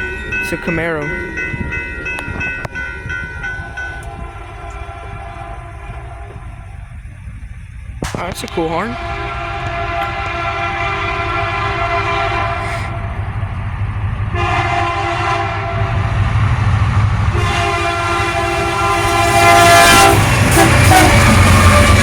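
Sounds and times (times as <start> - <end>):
diesel locomotive rumble: 0.0 - 22.0
rail noise: 0.0 - 22.0
locomotive air horn blasts: 4.0 - 6.8, 8.1 - 13.2, 14.3 - 16.2, 17.3 - 22.0.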